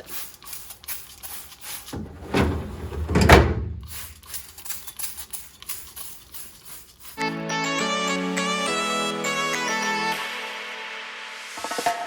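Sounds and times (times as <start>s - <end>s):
items clattering in a refrigerator: 1.1s - 5.3s
loud thuds: 2.0s - 3.9s.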